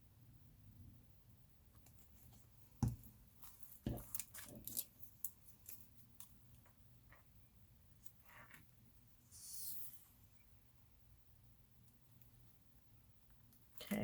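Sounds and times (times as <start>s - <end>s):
sharp knocks on tabletop: 2.8s - 3.0s.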